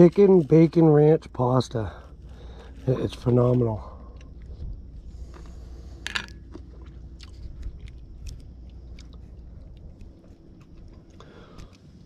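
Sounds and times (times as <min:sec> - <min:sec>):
person chewing food: 0:03.9 - 0:12.0.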